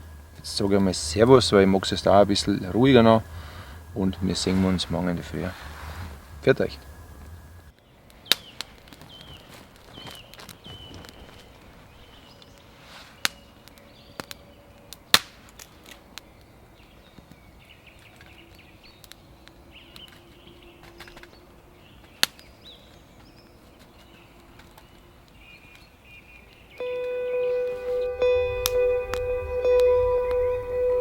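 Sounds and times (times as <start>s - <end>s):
campfire crackling: 0.0s - 31.0s
faint high chirps: 26.4s - 31.0s.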